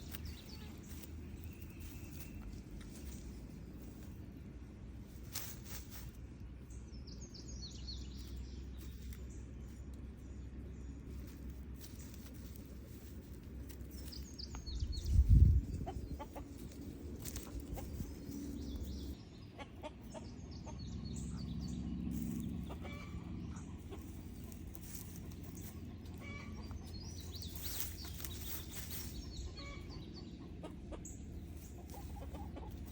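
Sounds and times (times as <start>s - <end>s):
chickens clucking: 7.4s - 32.9s.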